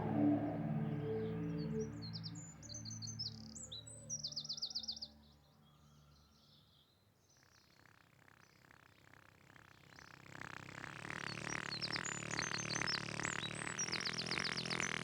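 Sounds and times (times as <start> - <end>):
held musical chords: 0.0 - 3.6.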